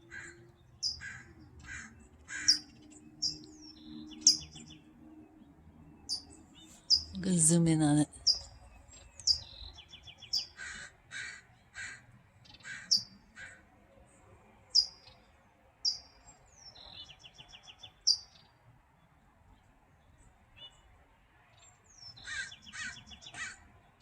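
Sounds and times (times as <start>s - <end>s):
crow cawing: 0.1s - 0.4s, 1.0s - 2.7s, 10.5s - 13.7s, 22.2s - 23.6s
small bird beeping calls: 0.1s - 4.9s, 6.0s - 13.2s, 14.8s - 15.1s, 15.8s - 16.8s, 17.4s - 18.4s.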